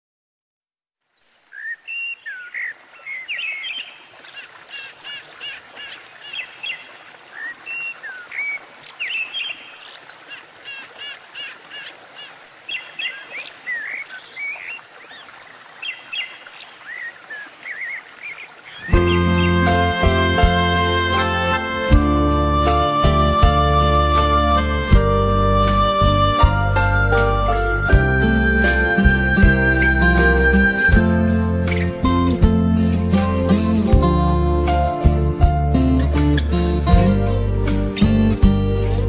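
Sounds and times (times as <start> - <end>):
steady outdoor hiss: 1.0 - 39.0
birds chirping and calling: 1.3 - 19.9.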